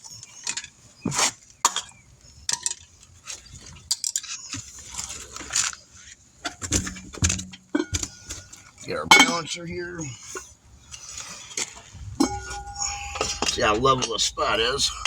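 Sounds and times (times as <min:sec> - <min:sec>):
metal clinks and clanks: 0:12.2 - 0:15.0.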